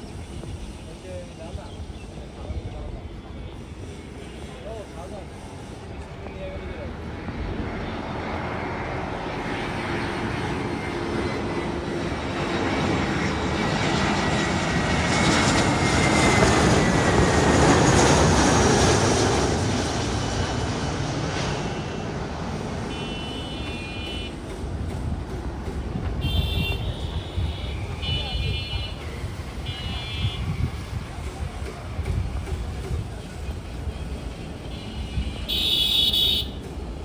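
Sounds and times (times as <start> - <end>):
jet airliner engine noise: 0.0 - 37.0.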